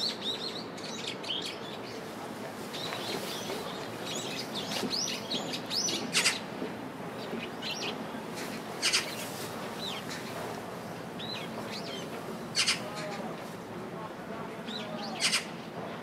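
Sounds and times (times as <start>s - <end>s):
birds chirping: 2.7s - 13.4s.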